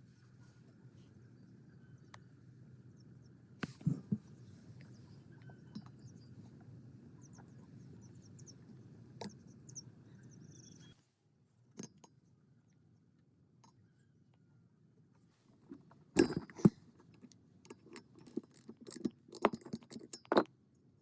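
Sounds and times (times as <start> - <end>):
faint high chirps: 4.7 - 11.0.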